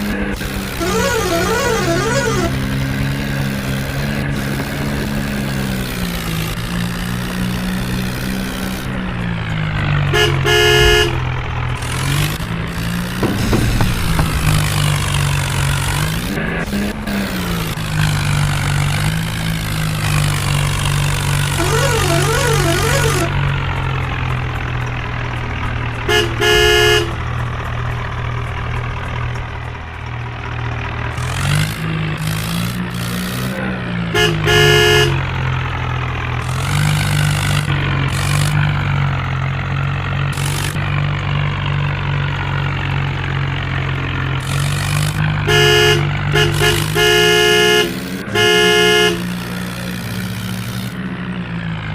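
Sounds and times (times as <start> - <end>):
stuttering horn blasts: 0.0 - 28.5, 31.1 - 35.6, 44.4 - 51.0
tractor engine running: 0.0 - 51.9.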